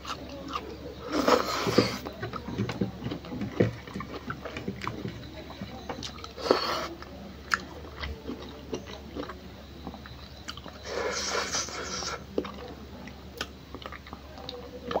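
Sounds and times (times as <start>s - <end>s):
chewing and lip smacks: 0.0s - 15.0s
mouth slurp: 1.0s - 2.0s, 10.8s - 12.3s.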